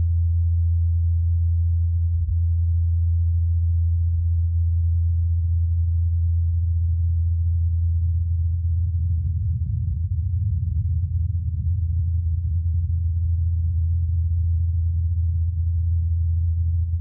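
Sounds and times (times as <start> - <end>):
wind noise: 8.9 - 13.7.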